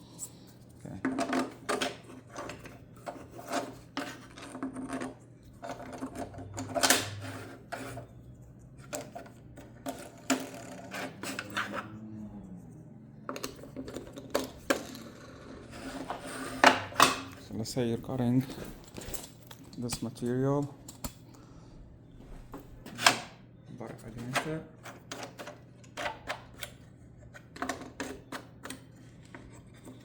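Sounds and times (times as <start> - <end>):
plastic and metal parts scraping: 8.8 - 12.0, 13.2 - 20.3.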